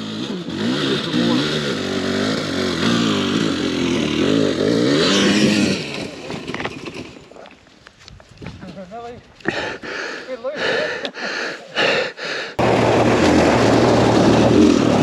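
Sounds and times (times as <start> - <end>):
dirt bike engine revving: 0.0 - 7.4, 12.6 - 15.0.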